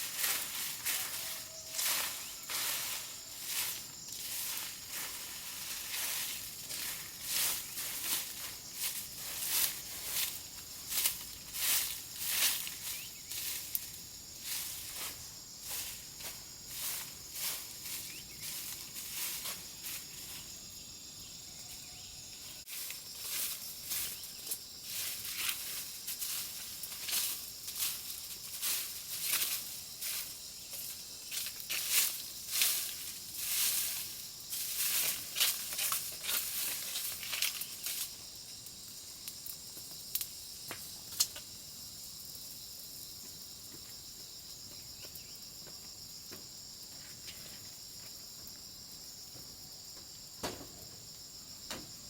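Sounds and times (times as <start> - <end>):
dry leaves rustling: 0.0 - 20.6, 22.6 - 38.2
insects shrilling: 0.0 - 43.1.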